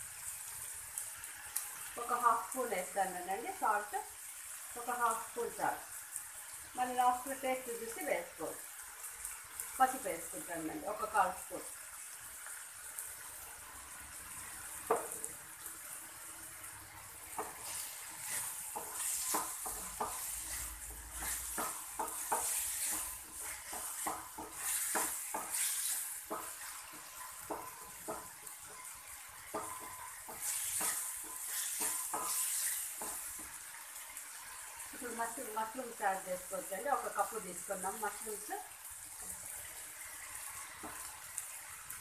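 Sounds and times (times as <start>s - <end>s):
masala sizzling in a pan: 0.0s - 42.0s
wooden spatula scraping pan: 17.4s - 33.6s.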